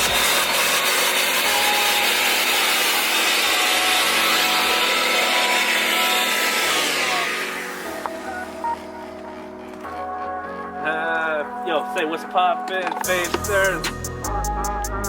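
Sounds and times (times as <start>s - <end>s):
loud steady rushing noise: 0.0s - 8.8s.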